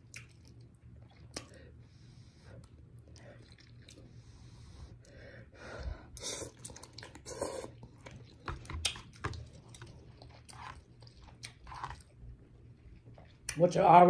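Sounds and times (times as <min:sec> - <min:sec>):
person chewing: 0:00.0 - 0:01.6, 0:02.6 - 0:04.2, 0:06.1 - 0:13.6
person slurping noodles: 0:06.2 - 0:07.8.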